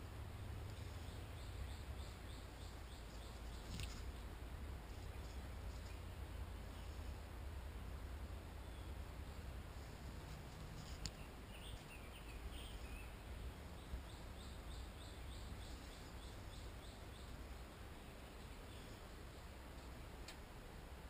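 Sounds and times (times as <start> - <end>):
faint low outdoor rumble: 0.0 - 21.0
bird singing: 0.6 - 4.4, 8.5 - 9.5, 10.8 - 19.6.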